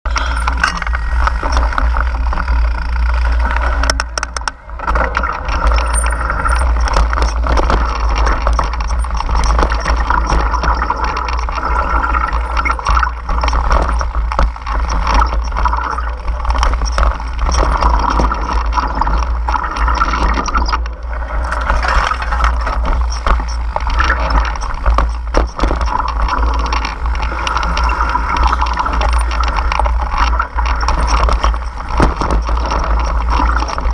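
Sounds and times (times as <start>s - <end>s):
steady low rumble: 0.0s - 33.9s.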